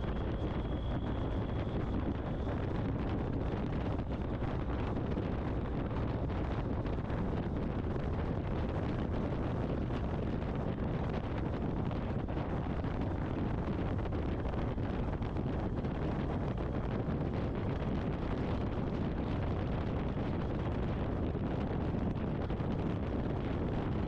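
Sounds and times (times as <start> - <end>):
wind rushing over helmet: 0.0 - 24.0.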